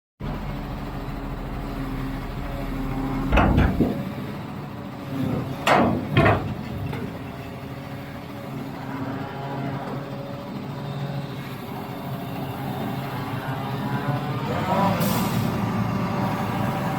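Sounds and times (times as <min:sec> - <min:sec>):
heavy engine running: 0:00.2 - 0:16.9
loud metal clanks: 0:03.2 - 0:04.3, 0:05.2 - 0:07.7.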